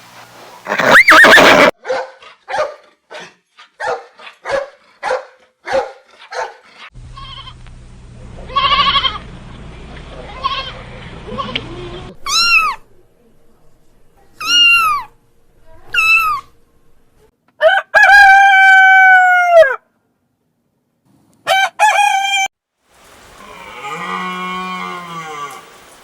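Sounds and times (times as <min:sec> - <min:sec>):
animal call with pitch glides: 0:00.7 - 0:01.7, 0:10.4 - 0:12.9, 0:14.4 - 0:16.6
goat bleating: 0:00.7 - 0:01.7, 0:07.1 - 0:07.6, 0:08.4 - 0:09.3, 0:10.2 - 0:13.0, 0:14.3 - 0:15.1, 0:15.7 - 0:16.6
low steady hum: 0:07.0 - 0:17.3
short animal calls: 0:10.3 - 0:12.9, 0:15.8 - 0:16.6.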